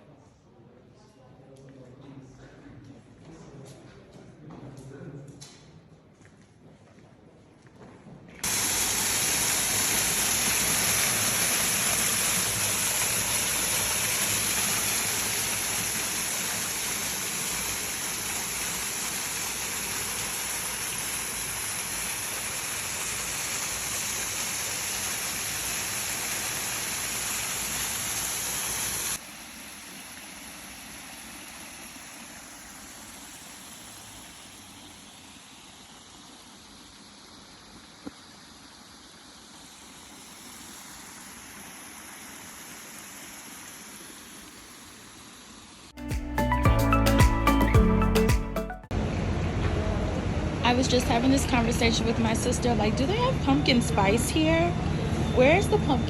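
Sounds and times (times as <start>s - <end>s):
faint steady hiss: 8.4s - 46.6s
running water rushing: 8.4s - 47.6s.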